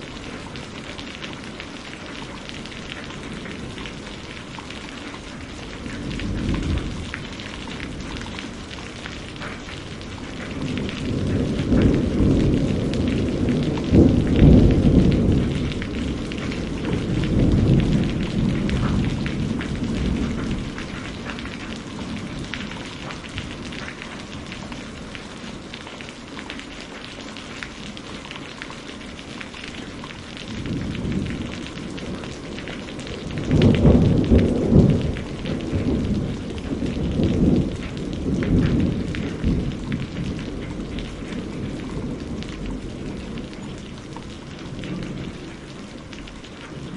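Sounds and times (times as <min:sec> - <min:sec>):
rain patter: 0:00.0 - 0:46.9
rolling thunder: 0:05.5 - 0:25.3, 0:30.3 - 0:46.9.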